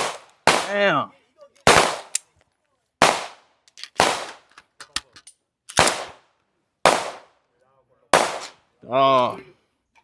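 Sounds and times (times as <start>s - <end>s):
gunshots with echo: 0.0s - 0.8s, 1.7s - 2.1s, 3.0s - 3.4s, 4.0s - 4.4s, 6.9s - 7.3s, 8.2s - 8.6s.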